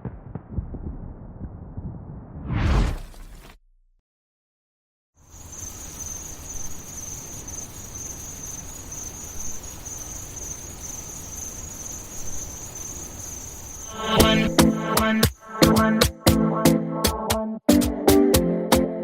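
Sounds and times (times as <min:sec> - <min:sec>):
low rumble: 0:00.0 - 0:04.0
crickets chirring: 0:05.2 - 0:15.9.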